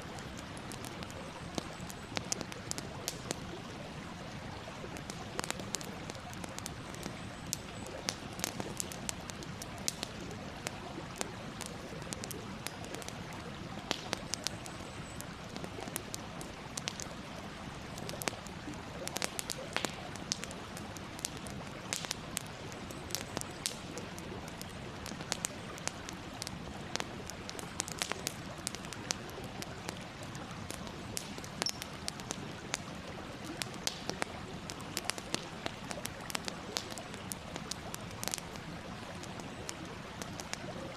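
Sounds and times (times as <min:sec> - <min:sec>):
wood campfire crackling: 0:00.0 - 0:40.9.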